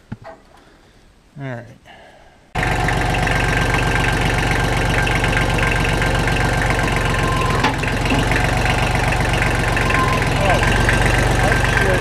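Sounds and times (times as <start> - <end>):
tractor diesel engine idling: 2.6 - 12.0.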